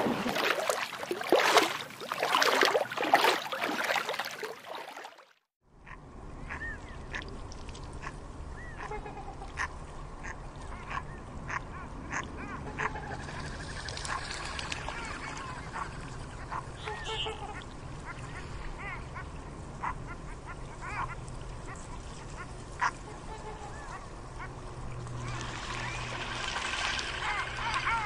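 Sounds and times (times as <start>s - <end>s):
surging water: 0.0s - 5.5s, 13.4s - 28.0s
low outdoor rumble: 5.7s - 28.0s.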